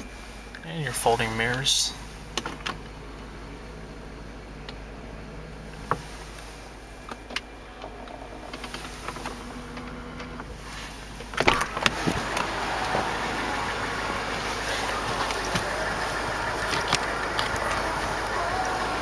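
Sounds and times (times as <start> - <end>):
mirror motors whirring: 2.9 - 19.0
steady rush of noise: 10.4 - 19.0.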